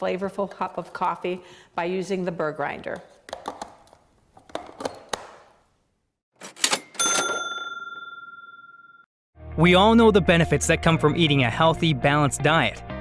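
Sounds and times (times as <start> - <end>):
cash register bell ding: 6.4 - 9.1.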